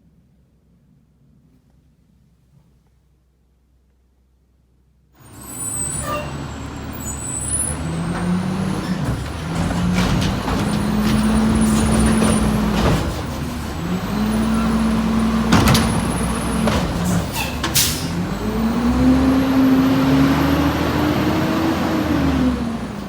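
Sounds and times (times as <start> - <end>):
heavy truck engine pulling: 5.2 - 23.0.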